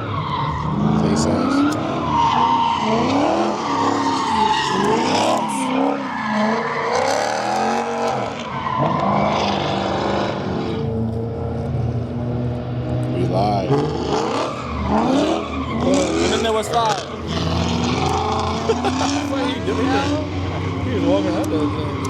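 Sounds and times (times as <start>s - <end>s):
car engine revving: 0.0s - 22.0s
tires screeching: 0.0s - 22.0s.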